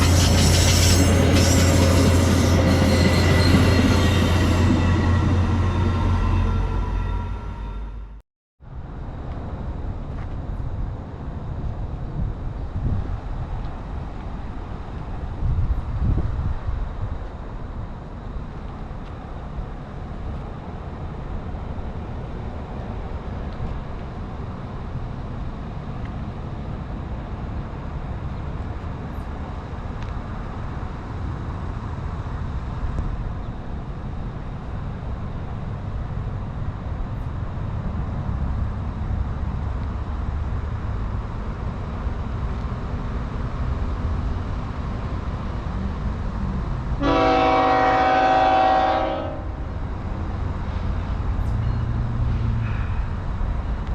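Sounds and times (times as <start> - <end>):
locomotive air horn: 0.0 - 8.2, 47.0 - 49.6
train rumbling: 0.0 - 53.9.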